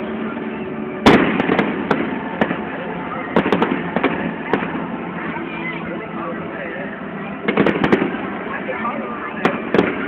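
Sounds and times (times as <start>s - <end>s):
crowd hum: 0.0s - 10.0s
fireworks bang: 1.0s - 4.9s, 7.4s - 8.4s, 9.4s - 10.0s
fireworks cracks and pops: 1.1s - 2.7s, 3.3s - 4.9s, 7.5s - 8.4s, 9.4s - 10.0s.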